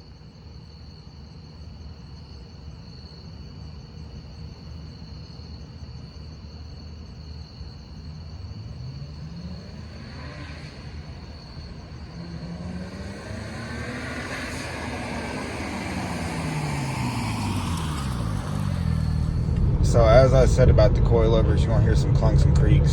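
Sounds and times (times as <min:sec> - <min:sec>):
crickets chirping: 0:00.0 - 0:22.9
car engine accelerating: 0:08.0 - 0:22.9.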